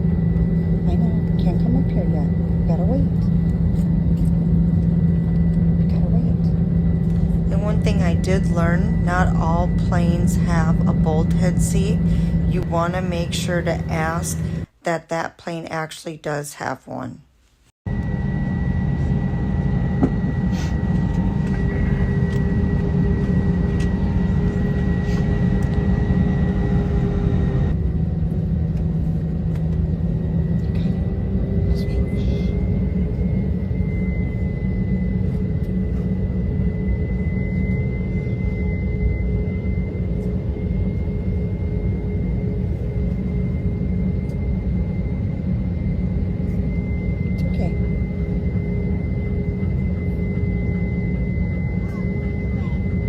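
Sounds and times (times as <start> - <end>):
jet engine drone in cabin: 0.0 - 14.9, 17.9 - 53.0
thin high whine: 17.9 - 29.3, 29.9 - 53.0.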